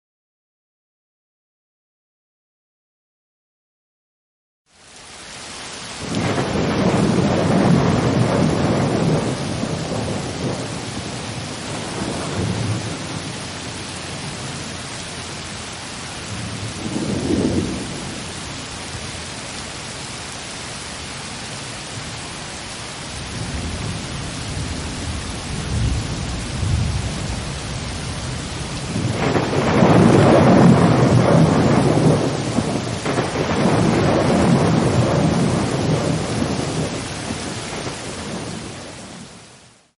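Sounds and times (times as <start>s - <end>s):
steady rain hiss: 4.7s - 39.9s
rolling thunder: 6.0s - 14.6s, 16.2s - 18.6s, 23.4s - 39.3s.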